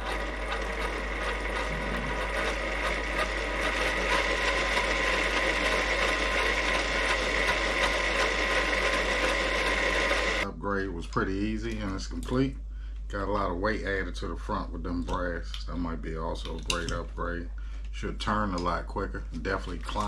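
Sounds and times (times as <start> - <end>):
high gear whine: 0.0 - 8.3
electric motor and drivetrain running: 0.0 - 10.5.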